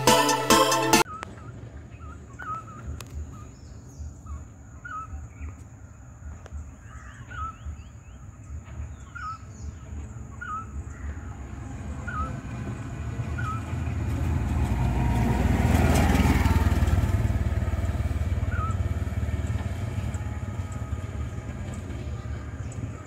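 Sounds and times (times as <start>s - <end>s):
electronic music: 0.0s - 1.1s
bird calling: 8.9s - 11.4s, 12.0s - 12.4s, 13.3s - 13.8s, 18.4s - 18.9s.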